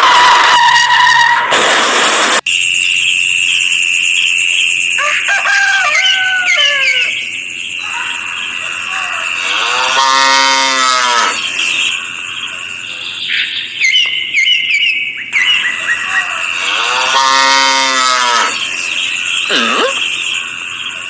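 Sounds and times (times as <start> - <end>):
bird-like chirps: 2.5 - 9.9, 11.0 - 17.3, 18.5 - 21.0
cow mooing: 9.1 - 11.4, 16.2 - 18.6.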